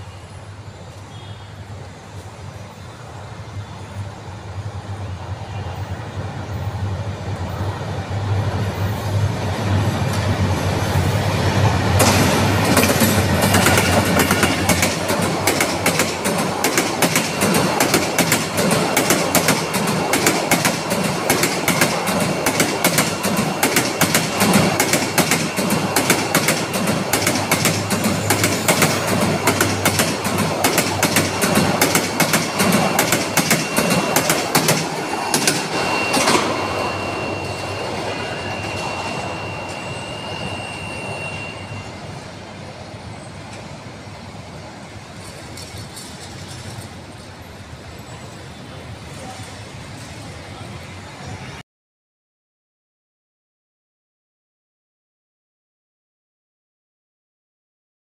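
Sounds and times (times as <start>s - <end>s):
train wheels clattering over joints: 12.0s - 36.6s
thin steady high whine: 25.0s - 42.3s.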